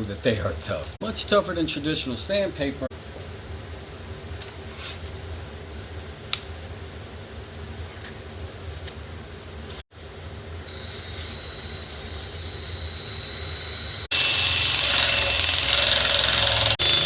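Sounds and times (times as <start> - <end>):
belt sander running: 10.7 - 17.0.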